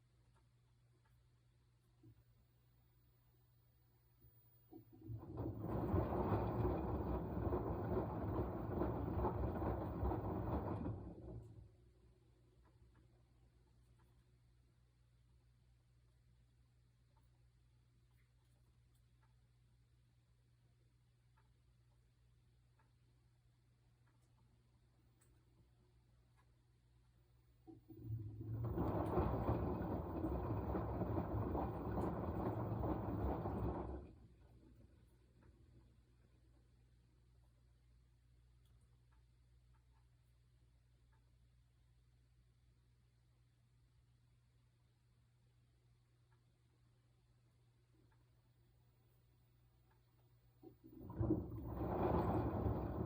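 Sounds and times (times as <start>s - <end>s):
faint low hum: 0.0s - 53.0s
washing machine drum tumbling: 4.7s - 12.0s, 27.7s - 36.0s, 50.6s - 53.0s.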